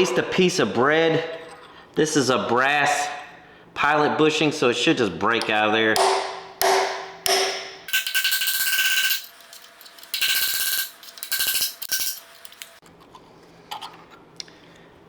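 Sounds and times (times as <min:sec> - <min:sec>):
hammer striking metal: 0:05.4 - 0:08.7.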